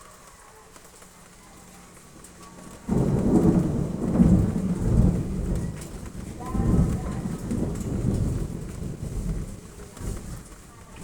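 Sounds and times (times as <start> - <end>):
faint rain: 0.0 - 11.0
deep rolling thunder: 2.8 - 11.0
thunderclap: 2.8 - 11.0.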